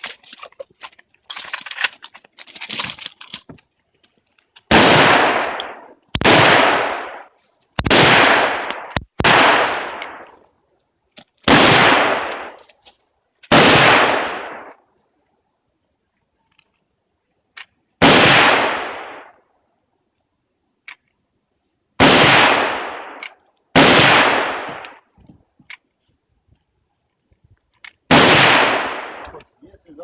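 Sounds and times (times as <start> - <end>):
gunshots with ringing tail: 4.7 - 10.4, 11.5 - 12.6, 13.5 - 14.8, 18.0 - 19.4, 22.0 - 25.0, 28.1 - 29.4.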